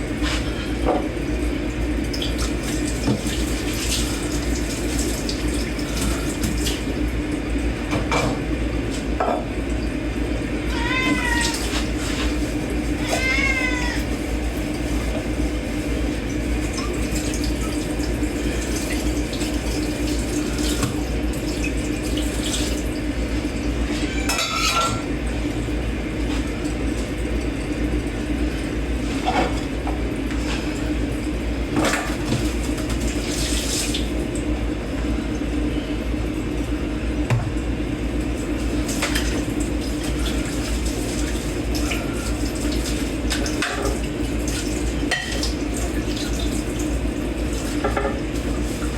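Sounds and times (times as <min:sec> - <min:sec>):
water running in sink: 0:00.0 - 0:48.9
plates and cutlery clinking: 0:24.3 - 0:25.0.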